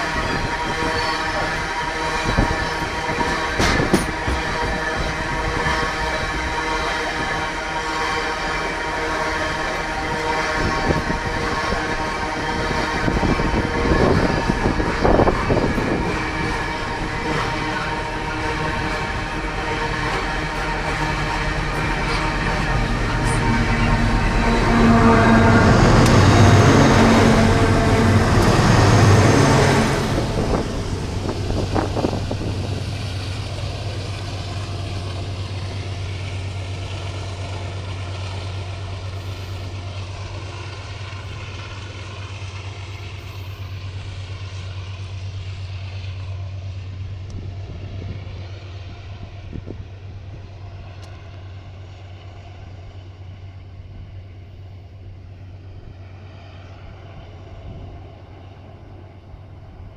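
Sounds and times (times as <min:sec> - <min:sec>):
diesel locomotive drone: 0:00.0 - 0:59.9
freight train running: 0:00.0 - 0:59.9.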